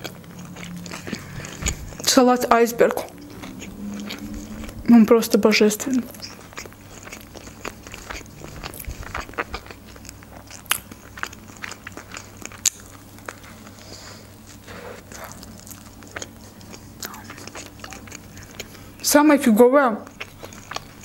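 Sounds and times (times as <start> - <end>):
biting into burger: 0.0 - 2.1, 6.0 - 19.0
chewing with mouth clicks: 0.0 - 19.2, 20.0 - 21.0.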